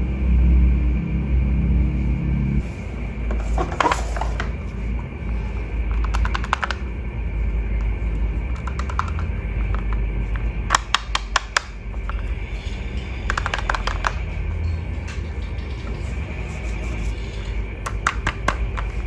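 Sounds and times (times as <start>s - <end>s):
steady low hum: 0.0s - 19.0s
hands handling toy packaging: 5.4s - 6.9s, 8.4s - 12.2s.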